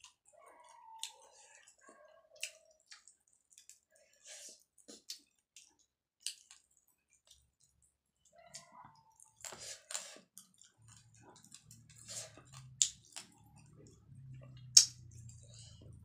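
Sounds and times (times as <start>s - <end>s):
chewing and mouth clicks: 0.0s - 16.0s
faint low hum: 10.7s - 16.0s.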